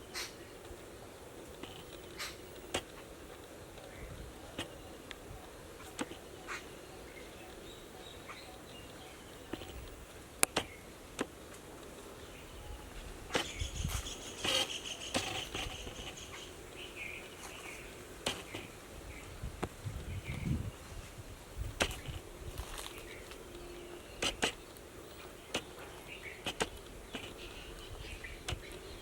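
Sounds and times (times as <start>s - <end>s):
birds chirping: 0.0s - 21.1s, 21.8s - 29.0s
faint insect hum: 0.0s - 29.0s
sharp clicks and rustles: 1.4s - 5.2s, 13.3s - 16.5s, 17.4s - 18.8s, 21.6s - 28.9s.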